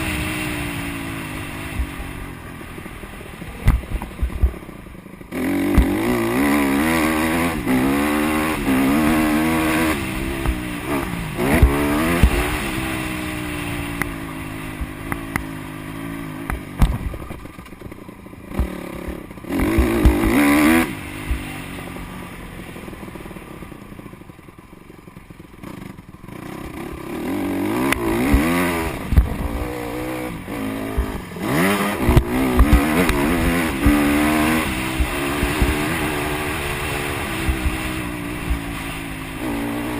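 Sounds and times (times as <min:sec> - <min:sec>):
motocross bike revving: 0:00.0 - 0:39.9.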